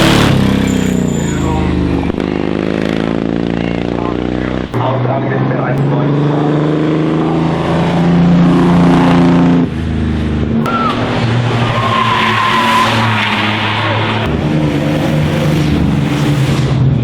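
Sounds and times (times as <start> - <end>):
racing car engine: 0.0 - 17.0
tyres squealing: 0.6 - 2.5, 10.6 - 15.4.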